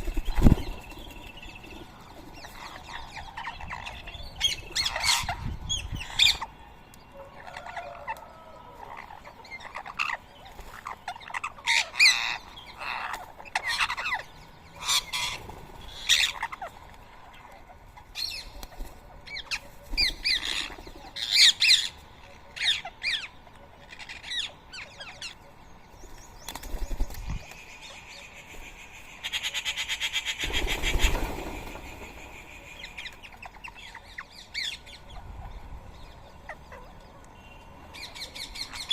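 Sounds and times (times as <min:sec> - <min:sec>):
parakeets screeching: 0:02.4 - 0:06.5, 0:08.8 - 0:16.7.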